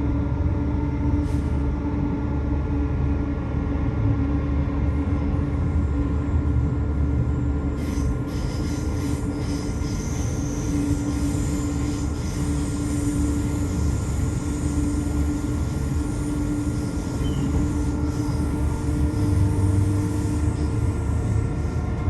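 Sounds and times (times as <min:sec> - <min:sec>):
train wheels rumbling on rails: 0:00.0 - 0:22.0
faint high wheel squeal: 0:07.7 - 0:21.9.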